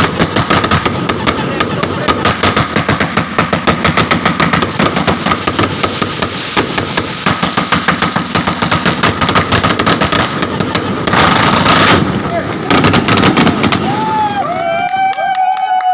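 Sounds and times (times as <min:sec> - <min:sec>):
string of firecrackers crackling: 0:00.0 - 0:15.9.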